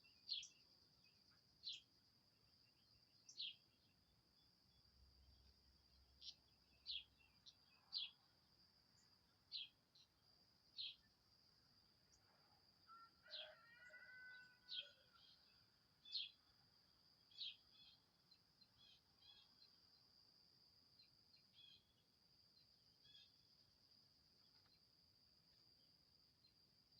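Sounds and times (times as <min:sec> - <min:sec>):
small bird chirping: 0:00.0 - 0:00.7, 0:01.6 - 0:01.9, 0:02.8 - 0:04.0, 0:06.2 - 0:08.2.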